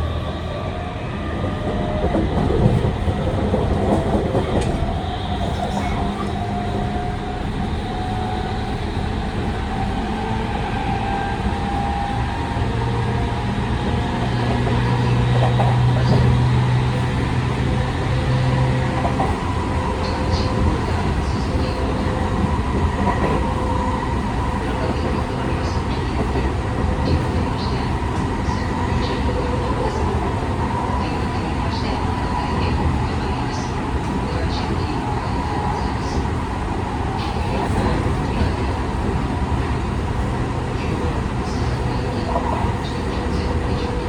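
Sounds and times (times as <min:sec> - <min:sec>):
wheel and rail rumble: 0:00.0 - 0:44.0.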